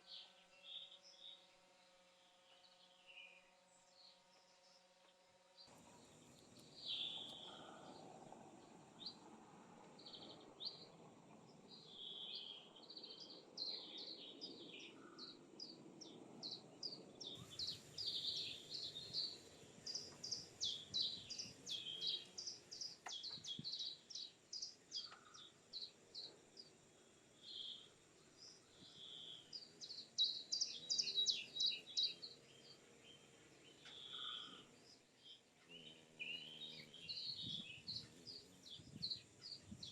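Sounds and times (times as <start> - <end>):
faint high insect hum: 0.0 - 39.9
forest birds chirping and trilling: 0.0 - 39.9.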